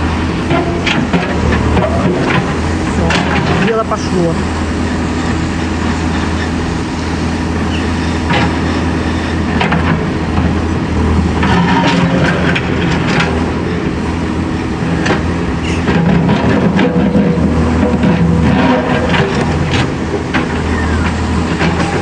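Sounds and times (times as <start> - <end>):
diesel engine running under load: 0.0 - 22.0
sharp knocks and clanks: 0.4 - 4.1.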